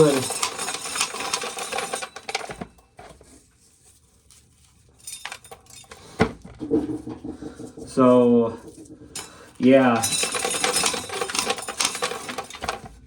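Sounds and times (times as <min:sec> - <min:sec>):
light clicking and clattering: 0:00.0 - 0:13.0.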